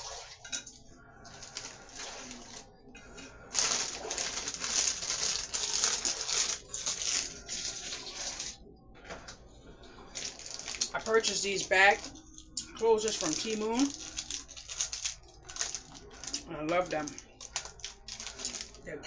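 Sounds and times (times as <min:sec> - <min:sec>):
plastic snack bag crinkling: 0:01.3 - 0:02.7, 0:03.5 - 0:08.6, 0:10.1 - 0:18.9.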